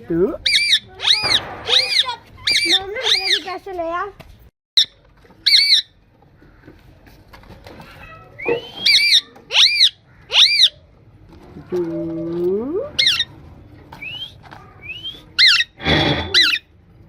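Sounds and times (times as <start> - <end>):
parrot squawking: 0.4 - 3.6, 4.8 - 5.9, 8.4 - 10.8, 12.9 - 13.3, 15.0 - 16.7.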